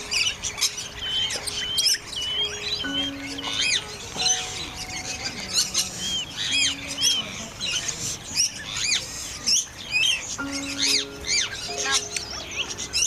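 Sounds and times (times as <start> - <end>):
background music: 0.0 - 7.6, 10.4 - 13.0
birds squawking and chirping: 0.0 - 13.0.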